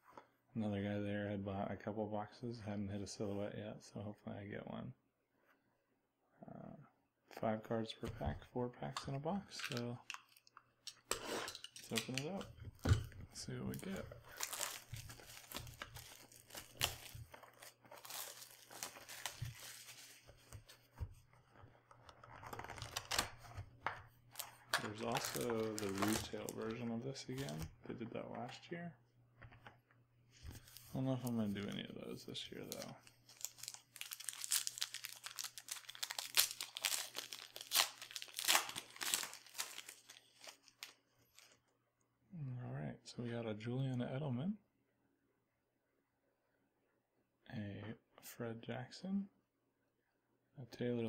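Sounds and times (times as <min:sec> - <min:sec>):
plastic wrap crinkling: 0:13.5 - 0:20.4, 0:24.3 - 0:27.7, 0:32.6 - 0:41.6
packaging being torn open: 0:13.8 - 0:19.8, 0:24.4 - 0:27.6, 0:32.7 - 0:41.5.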